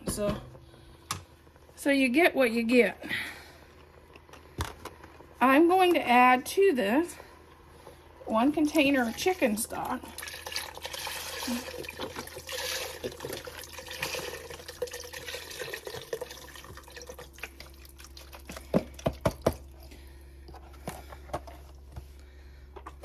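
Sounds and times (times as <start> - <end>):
liquid pouring and splashing into pot: 10.0 - 19.2.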